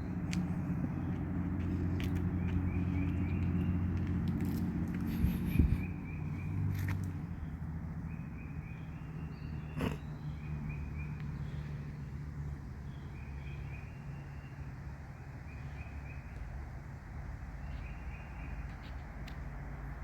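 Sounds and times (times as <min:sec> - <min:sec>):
small bird chirping: 0:17.5 - 0:19.4.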